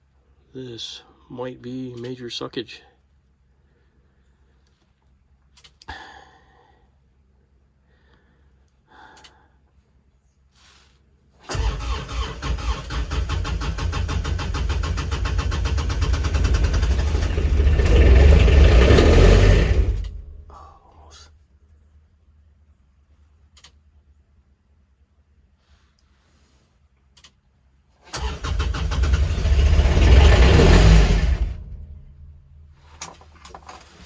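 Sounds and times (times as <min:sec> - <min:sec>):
diesel engine cranking: 0:11.4 - 0:20.5, 0:28.1 - 0:33.2.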